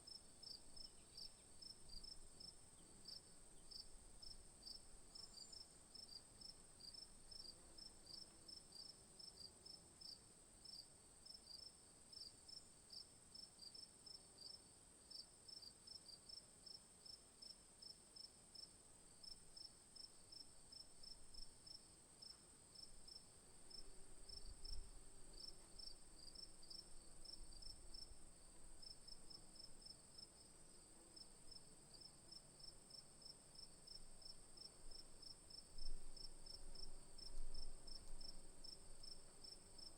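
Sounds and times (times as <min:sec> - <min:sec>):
crickets chirping: 0:18.2 - 0:39.9.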